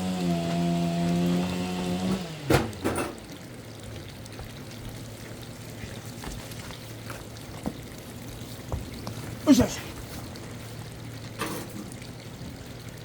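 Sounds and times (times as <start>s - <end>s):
chainsaw engine stopping: 0.0s - 2.9s.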